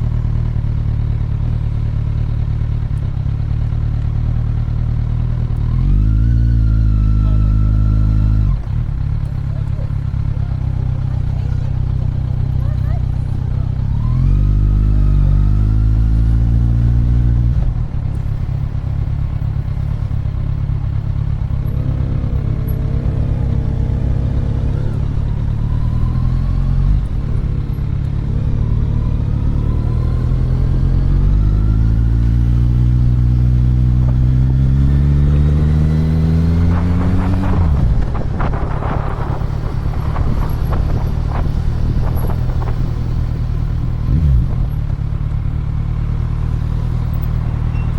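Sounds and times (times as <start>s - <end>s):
motorcycle engine accelerating: 0.0s - 47.9s
wind rumble on microphone: 35.4s - 45.0s.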